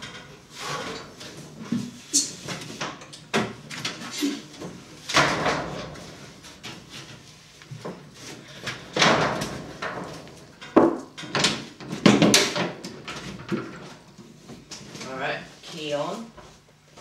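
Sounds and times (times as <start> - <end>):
metal clunks and rattles: 4.6 - 7.1, 7.8 - 14.1.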